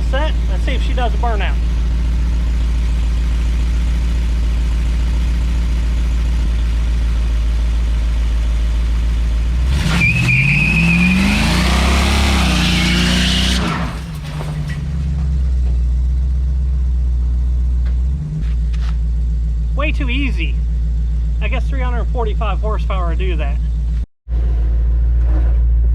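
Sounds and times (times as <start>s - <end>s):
pickup engine idling and revving: 0.0s - 25.9s
tyres squealing: 9.7s - 15.0s.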